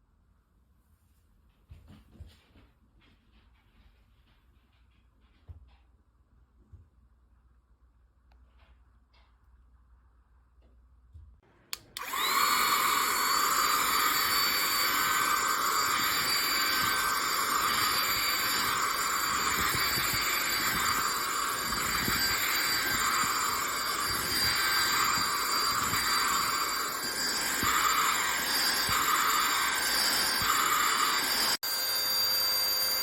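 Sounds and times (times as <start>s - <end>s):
vacuum motor whine: 11.8s - 33.0s.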